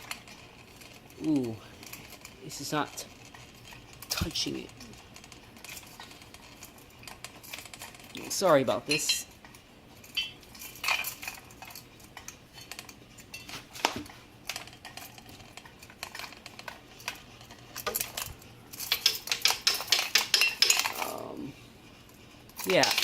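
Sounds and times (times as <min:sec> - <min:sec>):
small metal parts clinking: 0:00.0 - 0:13.6, 0:14.4 - 0:23.0
rapid clicking: 0:14.4 - 0:21.2.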